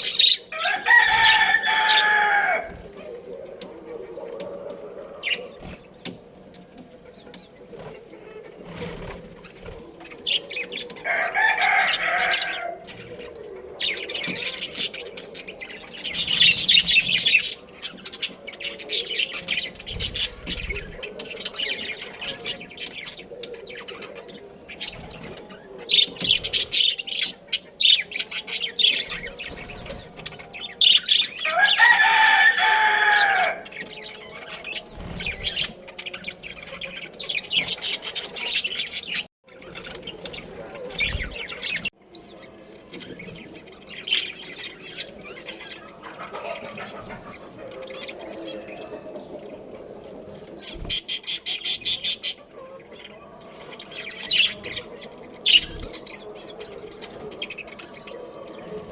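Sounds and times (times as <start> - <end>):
small birds chirping: 0.0 - 58.9
rooster crowing: 0.5 - 2.9, 11.0 - 13.0, 31.3 - 34.8.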